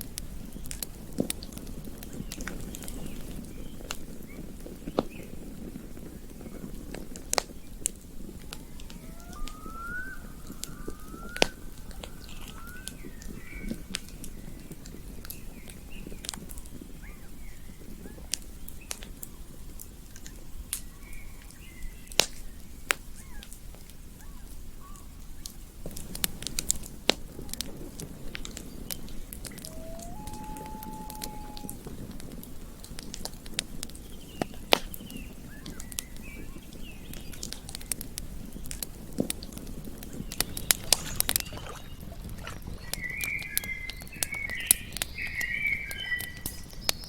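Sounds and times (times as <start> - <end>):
campfire crackling and popping: 0.0 - 47.0
faint rising whistled calls: 8.5 - 13.9, 29.0 - 31.8
rush of flames: 25.9 - 35.3.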